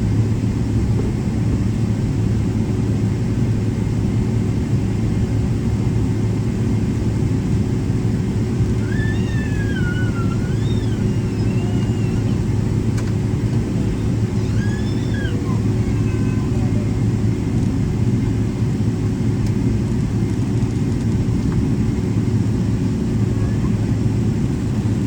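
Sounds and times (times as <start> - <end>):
aircraft cabin rumble: 0.0 - 25.0
faint high voice: 8.8 - 12.5, 13.8 - 17.2, 23.3 - 23.9.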